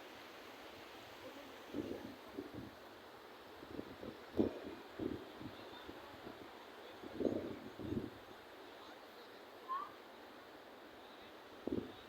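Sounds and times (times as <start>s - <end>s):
outdoor hiss: 0.0s - 3.6s.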